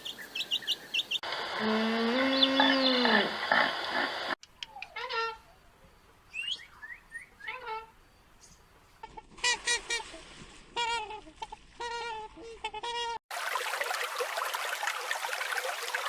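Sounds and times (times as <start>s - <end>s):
birds chirping: 0.0s - 1.3s, 2.1s - 8.8s.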